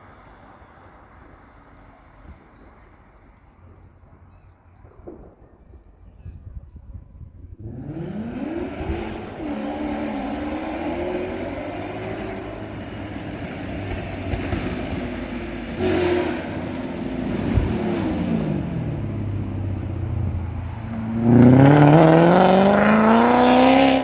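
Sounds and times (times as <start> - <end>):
car engine revving: 7.6 - 24.0.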